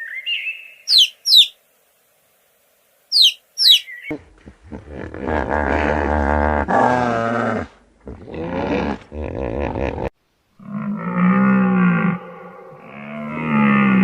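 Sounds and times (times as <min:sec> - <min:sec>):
animal calls with wavering pitch: 0:03.1 - 0:04.3
long low animal call: 0:04.1 - 0:14.0.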